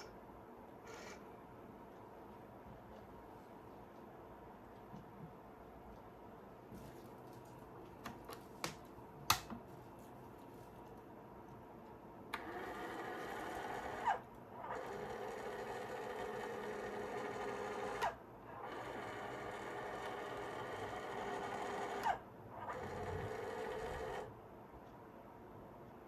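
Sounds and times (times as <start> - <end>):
small electric motor and gears running: 0.9 - 1.2, 12.4 - 24.3.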